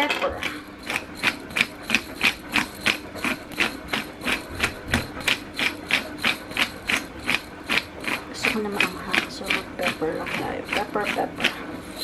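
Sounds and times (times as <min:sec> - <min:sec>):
kitchen utensil clicking strokes: 0:00.0 - 0:12.0.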